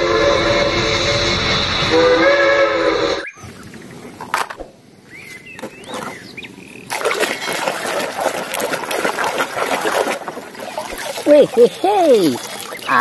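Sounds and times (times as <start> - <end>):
bird chirping: 5.0 - 7.5
splashing in soapy water: 6.9 - 13.0.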